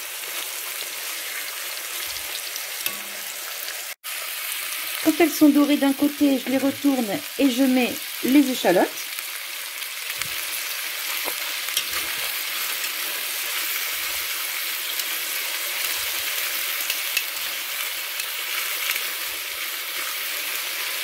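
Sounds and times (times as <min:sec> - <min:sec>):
meat sizzling in butter: 0:00.0 - 0:21.0
metal tongs clicking: 0:16.8 - 0:17.4.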